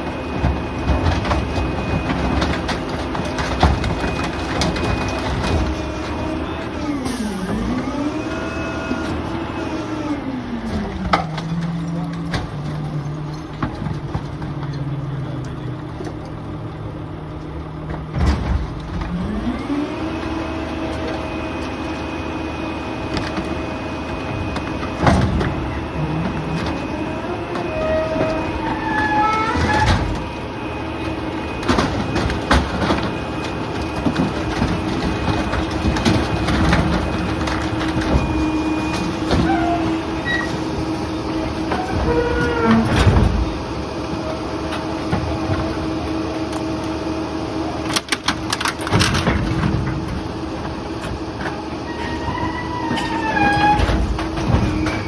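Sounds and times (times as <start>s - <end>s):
garbage truck diesel engine: 0.0s - 55.0s
debris knocking and cracking: 0.4s - 6.3s, 31.4s - 39.8s.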